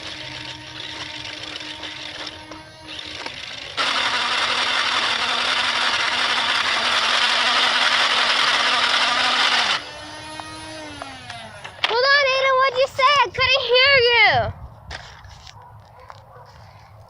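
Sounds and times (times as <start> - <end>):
small electric motor humming: 0.0 - 11.9.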